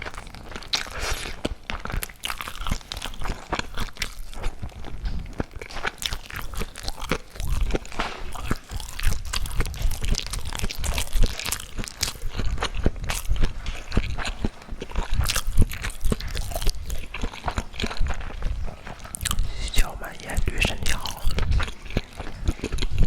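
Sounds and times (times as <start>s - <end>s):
chewing crunchy food: 0.0s - 23.0s.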